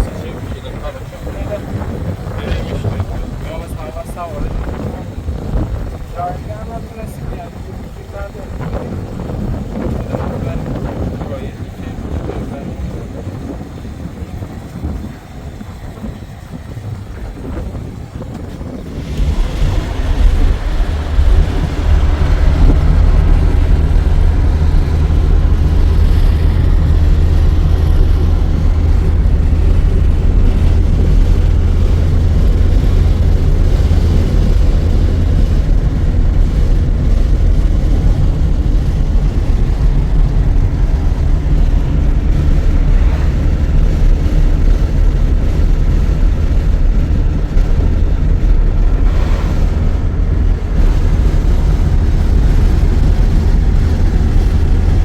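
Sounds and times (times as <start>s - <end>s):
vehicle engine rumbling: 0.0s - 55.0s.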